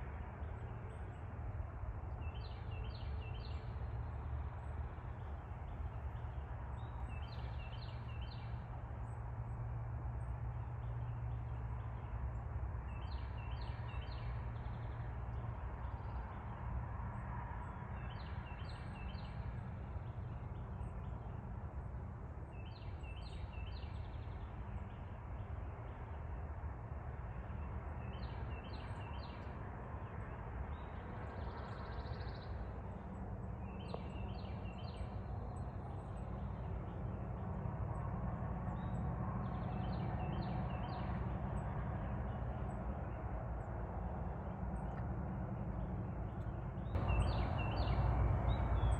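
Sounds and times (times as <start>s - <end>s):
steady low rumble: 30.7s - 48.9s.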